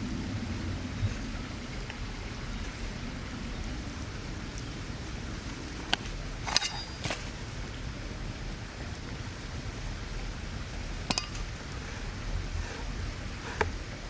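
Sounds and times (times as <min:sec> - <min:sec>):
low outdoor background noise: 0:00.0 - 0:14.0
sharp metal clicks: 0:11.1 - 0:11.6.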